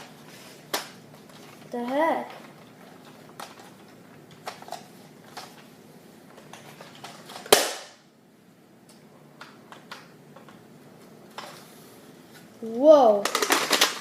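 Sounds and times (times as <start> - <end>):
loud sharp snap: 7.5 - 8.0.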